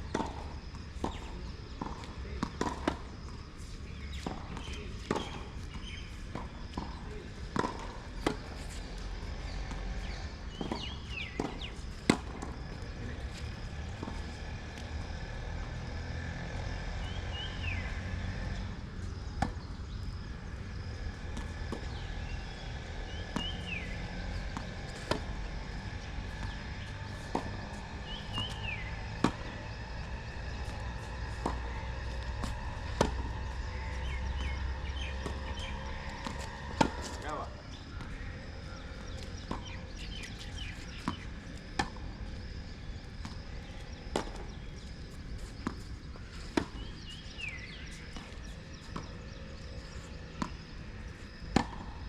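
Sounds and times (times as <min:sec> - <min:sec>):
tennis balls struck and bouncing: 0:00.0 - 0:52.0.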